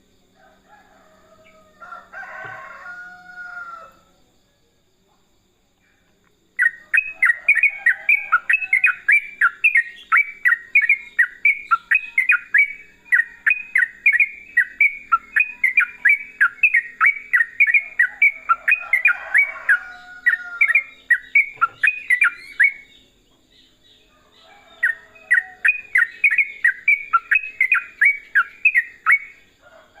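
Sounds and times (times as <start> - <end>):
bulbul chattering song: 6.6 - 23.8, 24.7 - 29.5.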